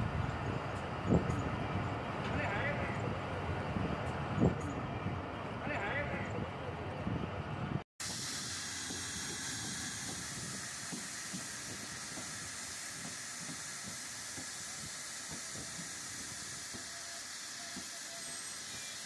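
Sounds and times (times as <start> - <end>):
steady rushing hiss: 8.0 - 19.0.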